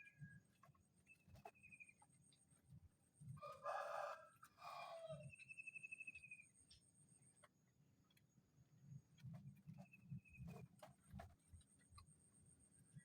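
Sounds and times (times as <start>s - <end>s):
rooster crowing: 3.4s - 5.3s.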